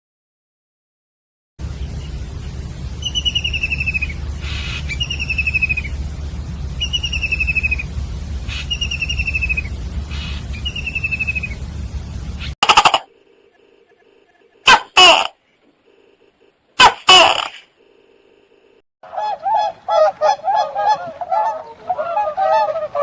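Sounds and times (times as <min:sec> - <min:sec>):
steady low rumble: 0:01.6 - 0:14.6
bird trilled calls: 0:03.0 - 0:06.0, 0:06.8 - 0:11.6.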